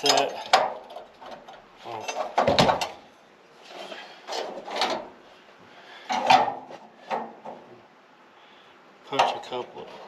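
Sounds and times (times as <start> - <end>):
metal tools scraping on workbench: 3.6 - 5.0.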